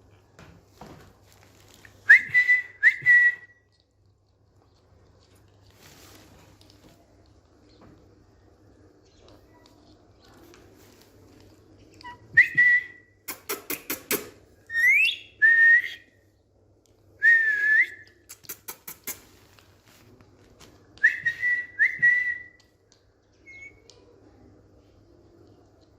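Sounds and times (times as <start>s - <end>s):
parakeet sharp clicks: 13.3s - 14.4s
parakeet whistling: 14.7s - 16.0s, 23.4s - 23.8s.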